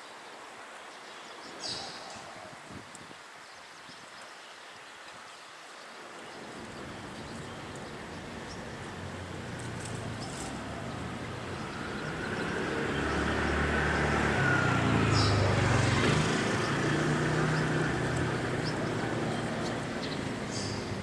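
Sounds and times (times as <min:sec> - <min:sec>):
motor vehicle passing by: 0:06.4 - 0:21.0.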